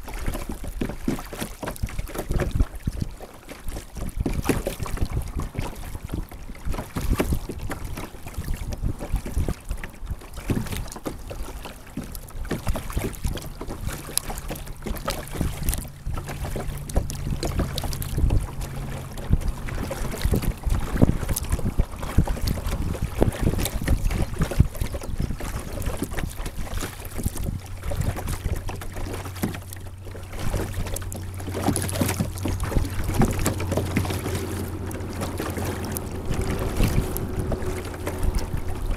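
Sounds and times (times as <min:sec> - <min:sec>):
water splashing against kayak: 0:00.0 - 0:38.9
wind buffeting microphone: 0:00.0 - 0:38.9
low steady hum: 0:11.7 - 0:38.9.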